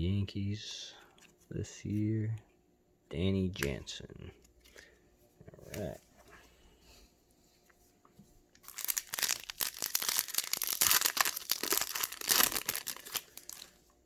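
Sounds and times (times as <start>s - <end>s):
foil wrapper tearing and crinkling: 8.6s - 13.8s.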